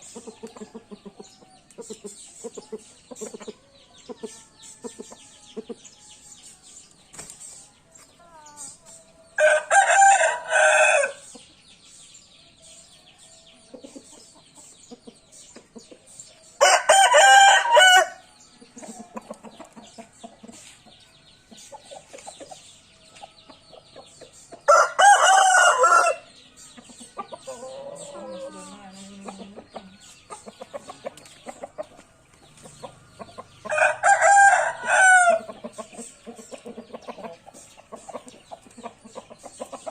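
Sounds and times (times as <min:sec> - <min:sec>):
chicken clucking: 0:00.0 - 0:11.6, 0:12.5 - 0:39.9
rooster crowing: 0:09.4 - 0:11.2, 0:16.6 - 0:18.2, 0:24.7 - 0:26.2, 0:33.7 - 0:35.5.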